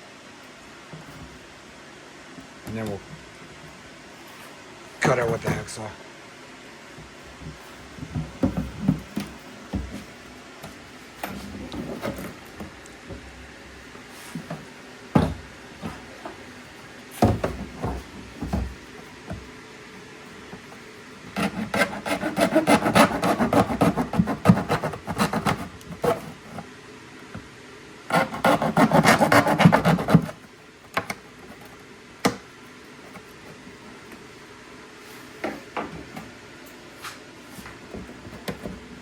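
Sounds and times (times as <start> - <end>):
hacksaw cutting: 21.3 - 26.5, 28.1 - 30.4.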